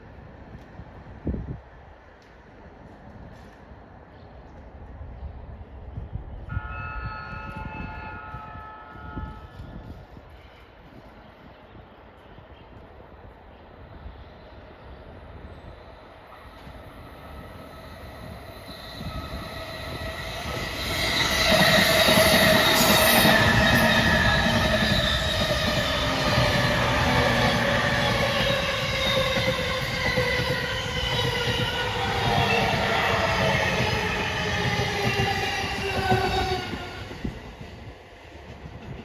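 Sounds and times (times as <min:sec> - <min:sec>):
train wheels rumbling on rails: 0:16.4 - 0:39.0.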